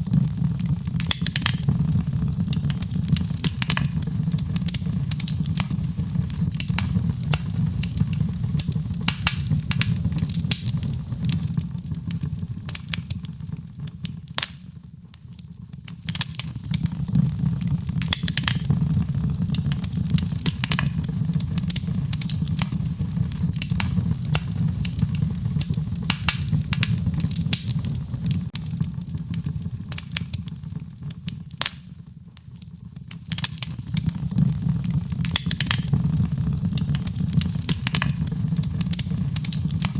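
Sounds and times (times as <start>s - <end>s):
fireplace fire crackling and popping: 0.0s - 39.9s
steady low rumble: 35.8s - 39.4s.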